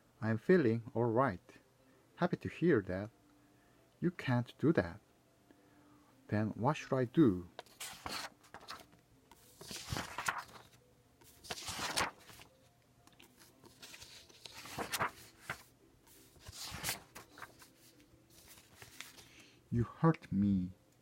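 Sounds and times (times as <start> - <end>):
book pages rustling: 7.6 - 19.5.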